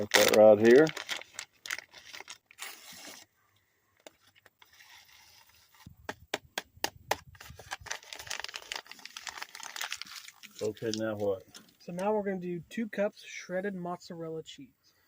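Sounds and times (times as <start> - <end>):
papery packet rustling: 0.0 - 3.3, 4.0 - 5.9, 7.2 - 11.8.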